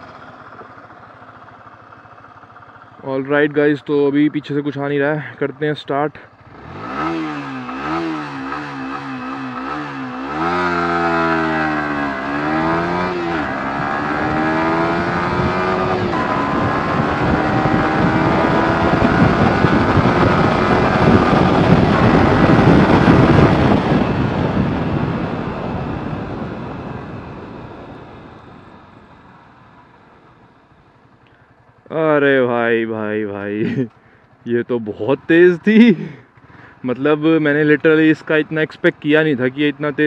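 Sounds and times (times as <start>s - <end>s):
motorcycle engine accelerating: 6.3s - 38.6s
wind rush: 11.3s - 28.4s.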